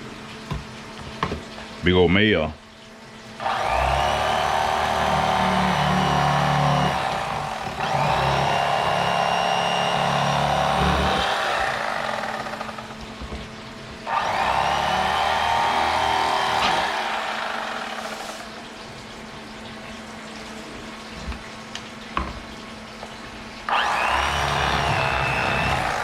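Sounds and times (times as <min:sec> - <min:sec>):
electric knife motor whining: 0:03.4 - 0:13.2, 0:14.0 - 0:18.6, 0:23.7 - 0:26.0.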